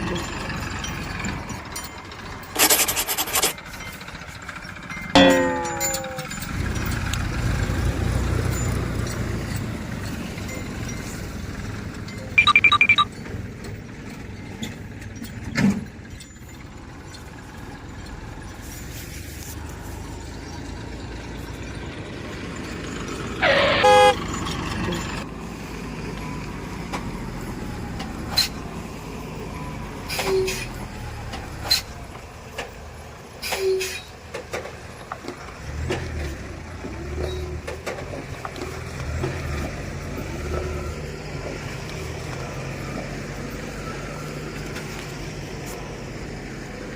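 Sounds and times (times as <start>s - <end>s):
vehicle engine running: 16.4s - 27.6s
loud horn honk: 23.4s - 24.3s.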